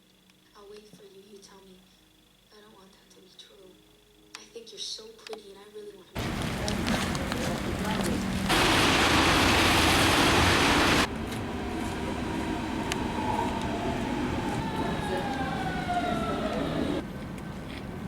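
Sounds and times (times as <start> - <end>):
street noise: 6.2 - 18.0
loud rushing hiss: 8.3 - 17.0
passing siren: 8.5 - 17.0.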